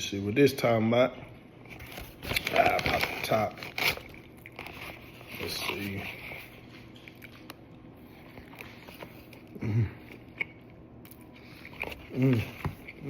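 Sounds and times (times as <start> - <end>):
closed-mouth hum: 0.0 - 13.0
person chewing food: 3.9 - 13.0.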